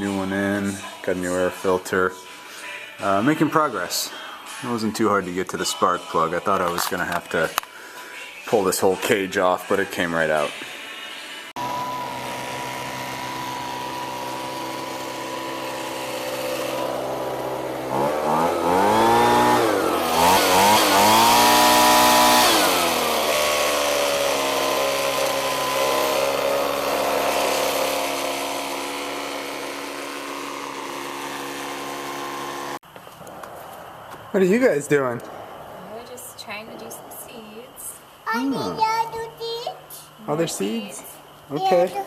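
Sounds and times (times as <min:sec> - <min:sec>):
leaf blower engine revving: 0:11.6 - 0:32.8.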